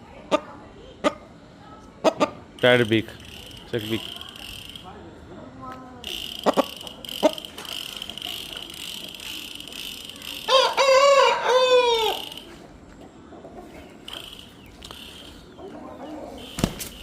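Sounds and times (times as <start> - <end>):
steady high-pitched hum: 0.8 - 17.0
rooster crowing: 10.4 - 12.4.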